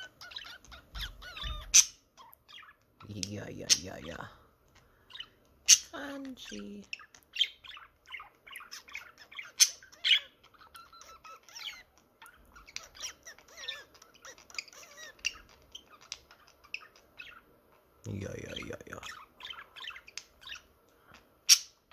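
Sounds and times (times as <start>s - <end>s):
budgerigar squawks: 0.0s - 4.0s, 5.1s - 17.5s
budgerigar chattering: 0.0s - 4.3s, 5.1s - 17.5s, 18.1s - 20.7s.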